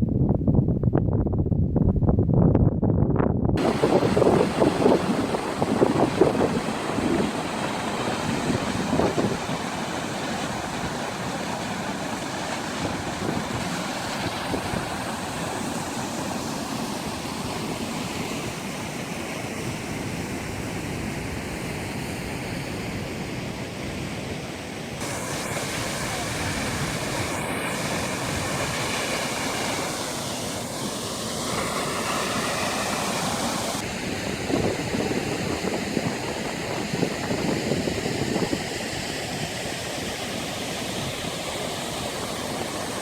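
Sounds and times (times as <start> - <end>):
wind buffeting microphone: 0.0 - 24.1, 25.0 - 43.0
waterfall rushing: 3.6 - 19.5, 25.0 - 36.8, 38.9 - 43.0.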